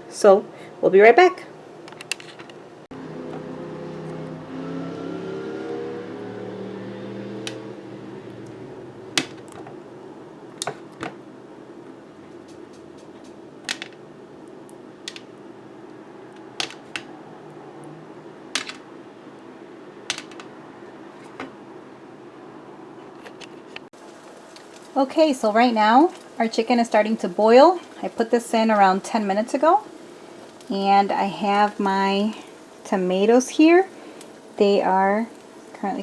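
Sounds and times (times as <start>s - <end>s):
low hum: 2.8s - 22.9s
pot of water boiling hiss: 23.9s - 36.0s.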